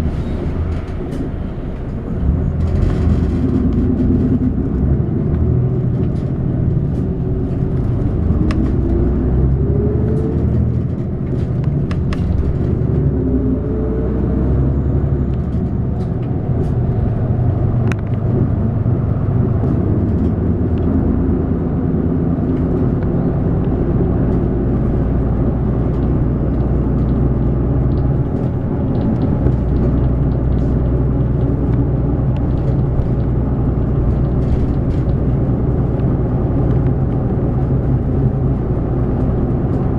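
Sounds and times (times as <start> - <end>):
bus engine running: 0.0 - 39.9
road noise: 0.0 - 39.9
clicks and rattles in cabin: 5.8 - 9.0, 10.0 - 13.0, 21.9 - 39.9.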